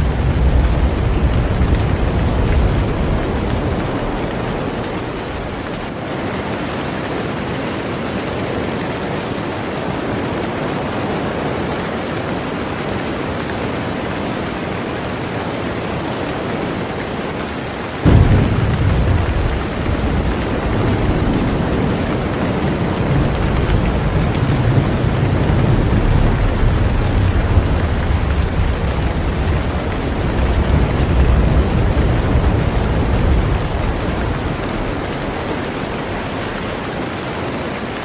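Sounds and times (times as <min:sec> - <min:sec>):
thunder rumbling: 0:00.0 - 0:06.0, 0:18.0 - 0:38.0
heavy rain on a boat: 0:00.0 - 0:38.0.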